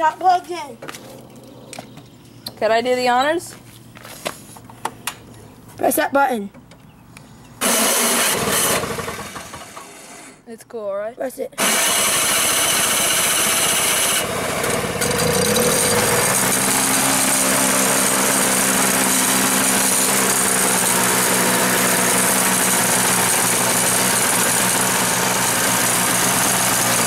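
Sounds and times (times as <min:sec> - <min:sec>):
electric starter cranking: 0:07.6 - 0:10.4, 0:11.6 - 0:27.0
snowblower engine running: 0:07.6 - 0:10.4, 0:11.6 - 0:27.0.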